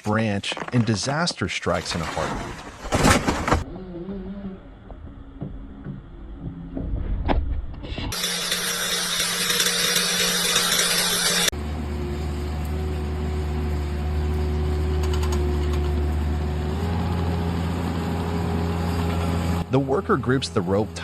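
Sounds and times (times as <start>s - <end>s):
chainsaw engine running: 8.1s - 11.5s.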